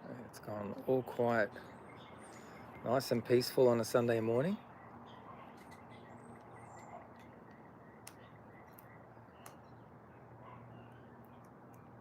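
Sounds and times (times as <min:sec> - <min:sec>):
distant bird chirps: 0:00.4 - 0:12.0.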